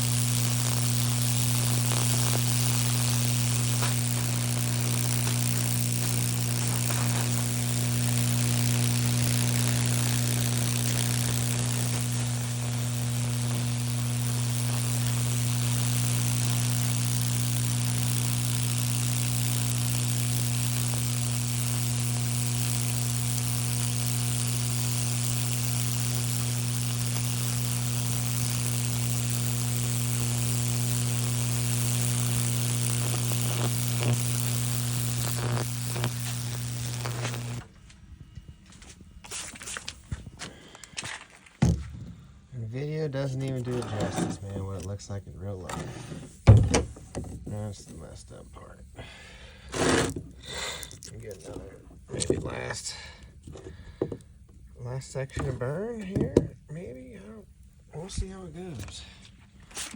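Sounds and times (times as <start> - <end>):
electric current sizzling hiss: 0.0 - 37.7, 54.7 - 59.9
transformer humming: 0.0 - 39.2.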